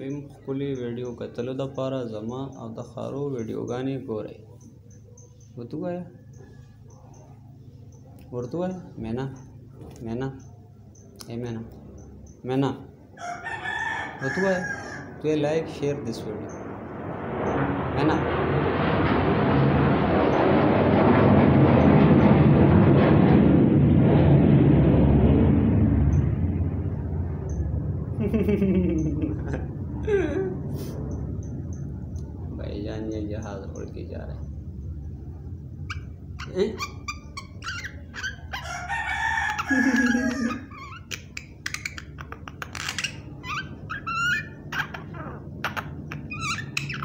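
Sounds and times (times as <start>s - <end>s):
aircraft engine passing overhead: 0.0s - 47.0s
rooster crowing: 13.2s - 15.5s, 38.2s - 40.8s
bird whistles chirps and clicks: 41.0s - 45.0s, 45.6s - 47.0s.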